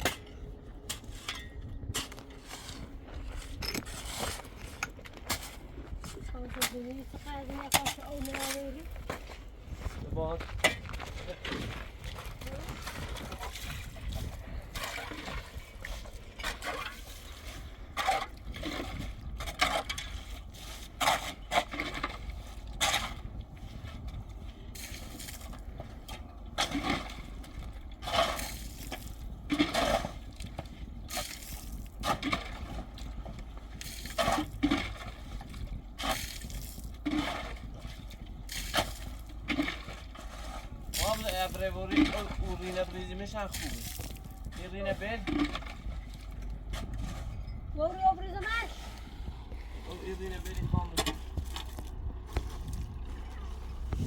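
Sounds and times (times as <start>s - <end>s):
low rumble: 0.0s - 54.0s
hand tool scraping: 0.9s - 8.8s, 36.0s - 45.9s.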